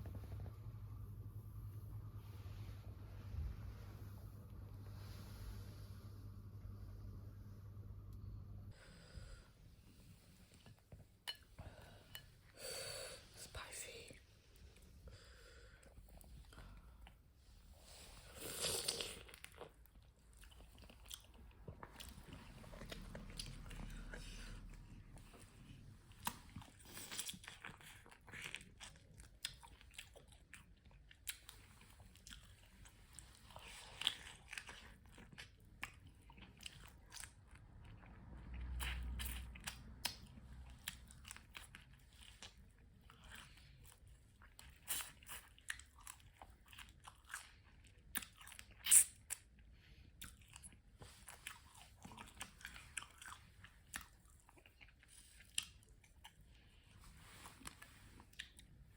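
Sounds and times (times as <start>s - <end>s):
crunching and chewing crab shells: 26.1s - 56.9s.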